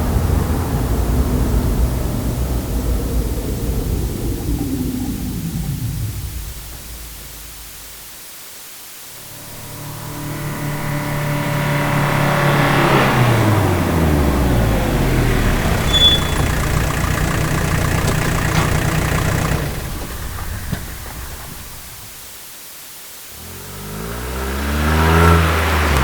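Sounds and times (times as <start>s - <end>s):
road noise: 0.0s - 8.2s, 9.0s - 22.6s, 23.3s - 26.0s
car driving by: 9.2s - 22.3s, 23.4s - 26.0s.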